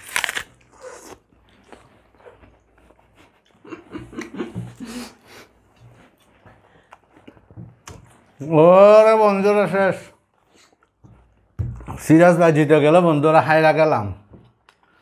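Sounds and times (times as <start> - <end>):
people chewing and smacking: 0.1 - 8.5, 10.2 - 12.0, 14.3 - 15.0.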